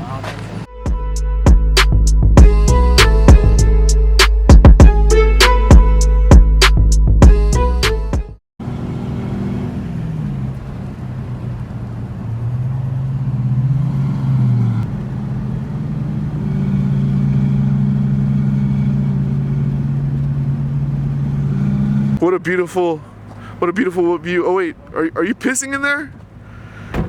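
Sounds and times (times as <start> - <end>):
car engine revving while driving: 8.6 - 22.3.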